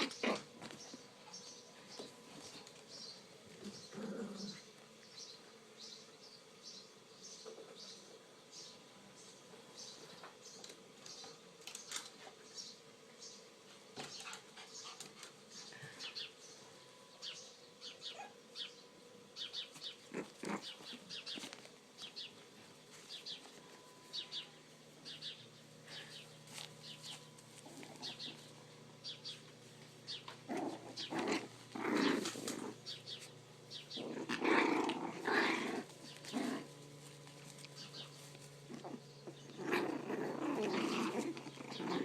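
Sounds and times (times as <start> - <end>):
puppies growling: 0.0 - 5.0, 19.4 - 22.3, 25.0 - 42.0.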